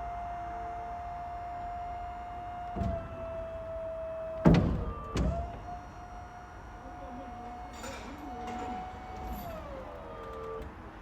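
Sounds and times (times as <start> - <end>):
truck mechanical whine: 0.0 - 11.0
truck clunks: 2.6 - 3.4, 4.4 - 6.1.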